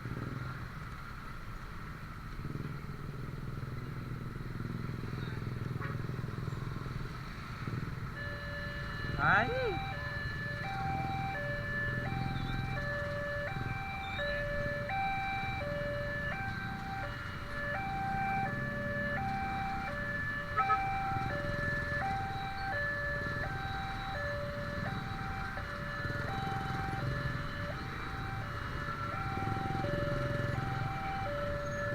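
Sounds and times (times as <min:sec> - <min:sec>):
level crossing alarm two-tone: 0:20.5 - 0:21.3.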